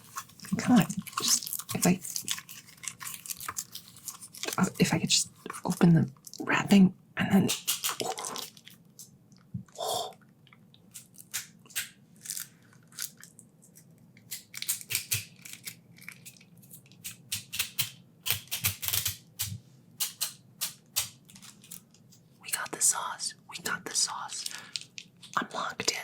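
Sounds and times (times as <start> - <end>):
wrapper crinkling and tearing: 0.0 - 6.4, 7.5 - 9.1, 10.9 - 17.2, 21.0 - 22.2.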